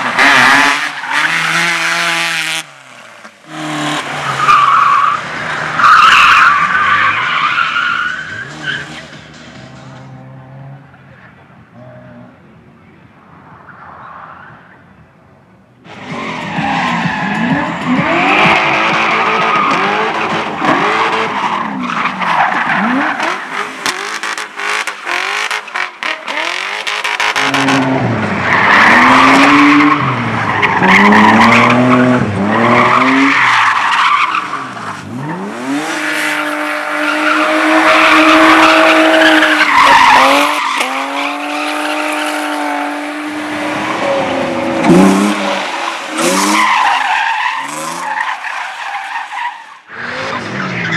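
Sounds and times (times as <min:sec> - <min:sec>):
tyres squealing and skidding: 0:00.0 - 0:02.0, 0:02.8 - 0:10.6, 0:15.9 - 0:50.9
car engine revving: 0:15.9 - 0:48.3.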